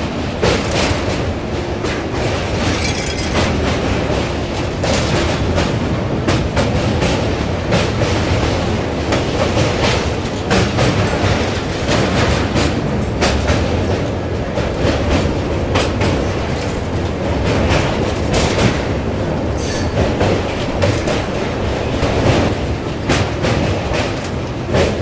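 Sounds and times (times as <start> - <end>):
train wheels rumbling on rails: 0.0 - 25.0
wheel clatter clacks: 2.5 - 4.1.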